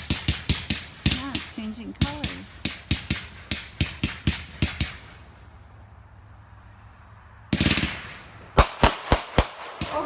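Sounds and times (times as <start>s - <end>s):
fireworks bangs and cracks: 0.0s - 5.5s, 7.5s - 10.0s.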